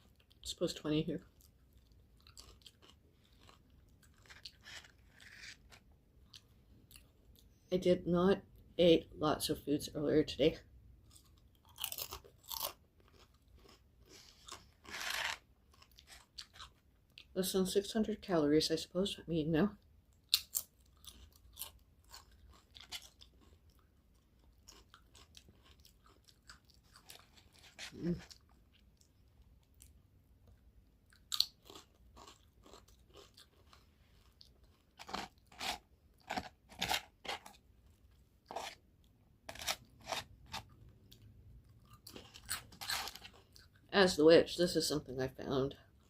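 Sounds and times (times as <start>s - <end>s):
person chewing crunchy food: 1.2s - 7.5s, 11.0s - 17.3s, 20.1s - 43.9s.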